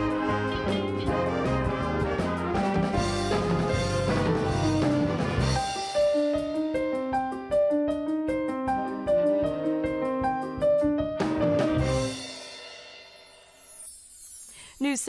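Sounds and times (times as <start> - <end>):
jazz band with brass and drums: 0.0 - 6.9, 10.6 - 12.9
piano melody: 0.0 - 13.9.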